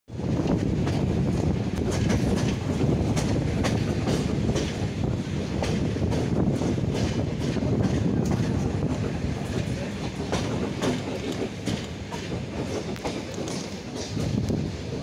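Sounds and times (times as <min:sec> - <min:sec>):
train running gear noise: 0:00.1 - 0:15.0
wheels clicking over rail joints: 0:05.6 - 0:15.0.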